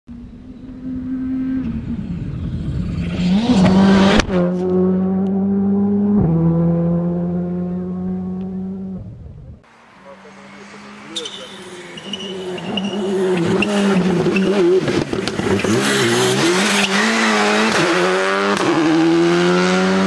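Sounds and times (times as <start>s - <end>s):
rally car passing at speed: 9.7s - 20.0s.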